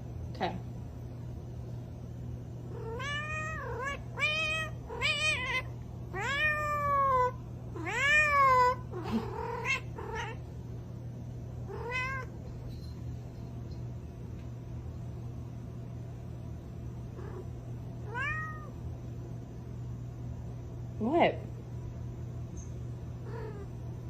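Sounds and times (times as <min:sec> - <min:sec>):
cat meowing: 0:02.7 - 0:10.4, 0:11.7 - 0:12.3, 0:18.1 - 0:18.8, 0:23.2 - 0:23.7.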